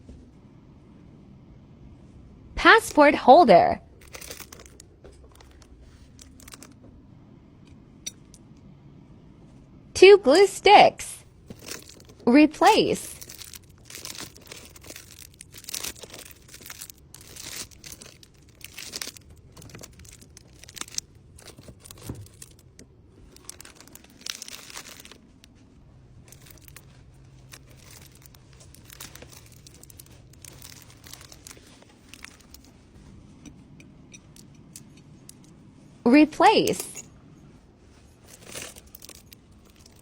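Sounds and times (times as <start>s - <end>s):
packaging crinkling and rustling: 11.4s - 25.6s, 26.2s - 32.9s, 38.0s - 40.0s.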